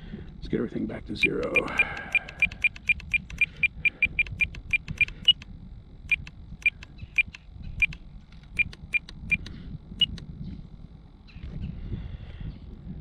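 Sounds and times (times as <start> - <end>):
radio transmitter beeps: 1.1 - 5.4, 6.1 - 10.2.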